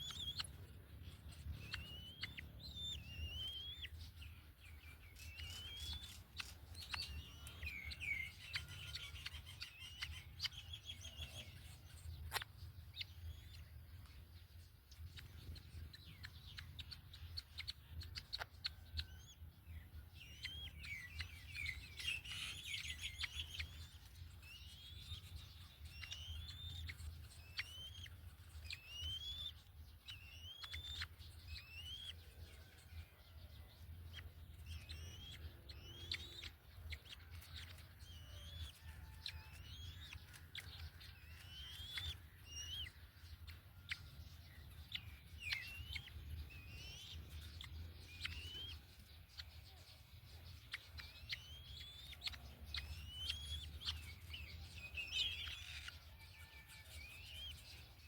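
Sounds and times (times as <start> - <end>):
bird whistling rising calls: 0.0 - 13.8, 15.4 - 33.2, 34.2 - 49.7, 50.6 - 58.0.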